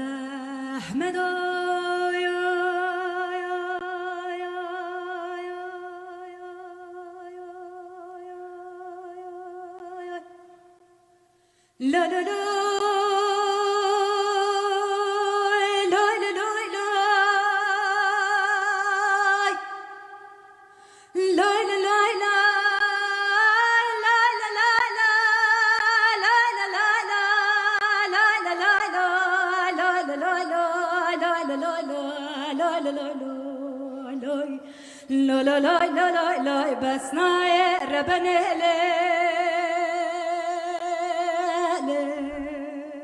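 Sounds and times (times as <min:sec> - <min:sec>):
woman singing folk song: 0:00.0 - 0:11.0, 0:11.8 - 0:43.0.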